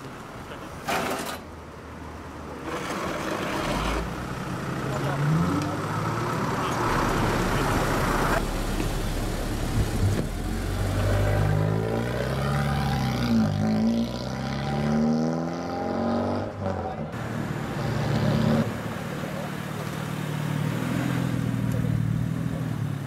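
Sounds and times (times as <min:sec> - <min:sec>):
truck passing by: 0:02.6 - 0:16.4, 0:17.2 - 0:23.0
car engine revving: 0:02.7 - 0:23.0.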